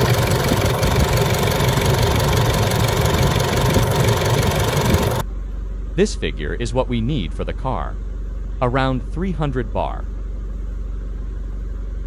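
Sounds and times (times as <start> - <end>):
diesel engine idling: 0.0 - 5.2.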